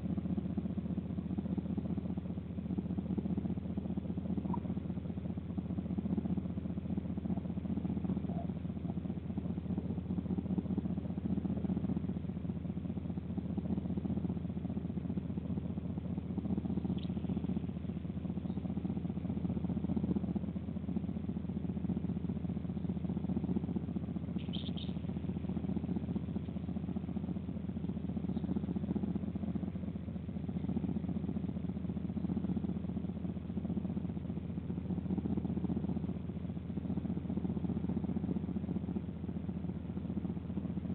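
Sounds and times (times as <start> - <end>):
steady low rumble: 0.0 - 40.9
short bird chirps: 24.4 - 25.0.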